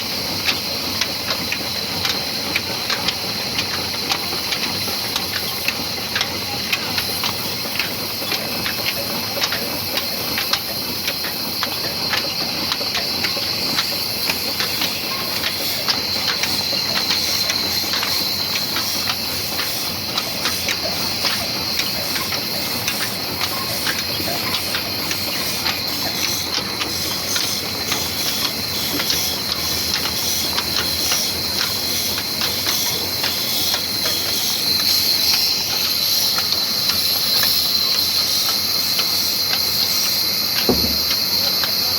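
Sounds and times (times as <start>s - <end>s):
engine knocks: 40.5s - 41.8s.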